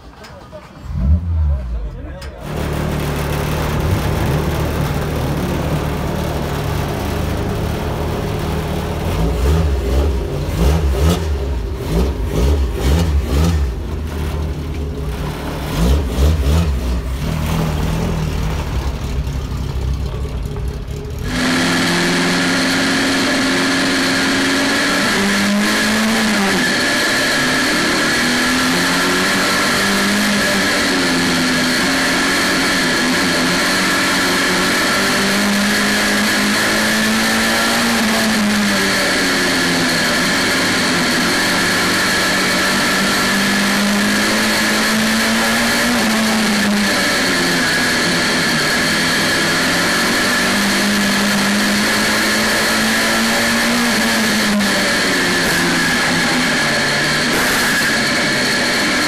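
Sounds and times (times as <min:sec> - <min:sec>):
race car engine under load: 0:00.0 - 0:59.0
steady high whine: 0:35.6 - 0:59.0.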